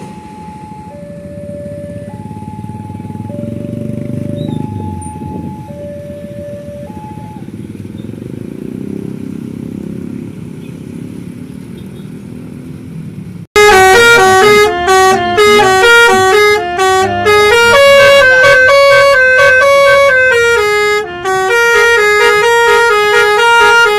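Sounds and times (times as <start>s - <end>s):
engine low rumble: 0.0s - 13.5s
loud multi-trumpet air horn melody: 13.6s - 23.9s.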